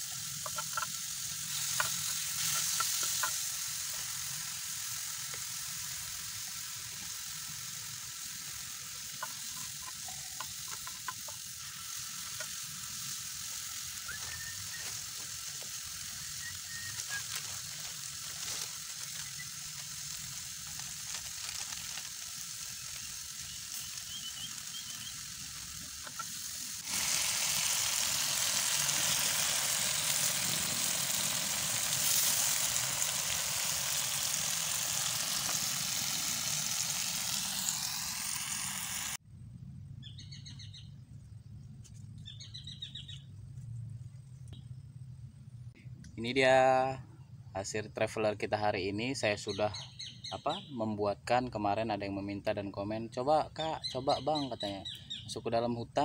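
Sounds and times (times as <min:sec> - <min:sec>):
sauce sizzling in a pan: 0:00.0 - 0:39.2
small crackles and ticks: 0:00.1 - 0:04.1, 0:09.0 - 0:12.9, 0:13.5 - 0:26.9.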